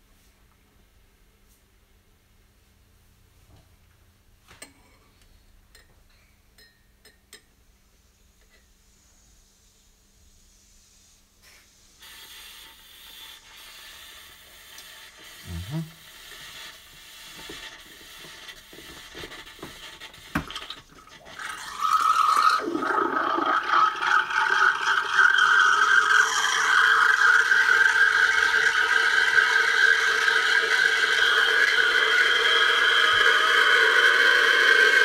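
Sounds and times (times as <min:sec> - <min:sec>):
steam wand hissing and whistling: 0:09.3 - 0:20.4, 0:26.0 - 0:35.0.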